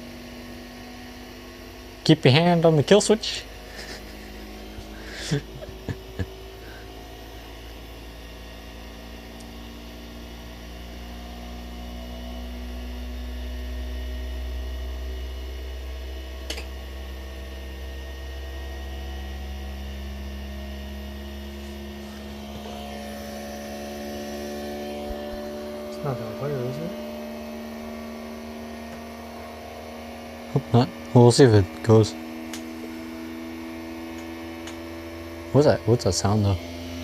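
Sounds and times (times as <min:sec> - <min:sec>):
stepper motor tones: 0:00.0 - 0:37.0
printer machine hum: 0:21.5 - 0:26.9.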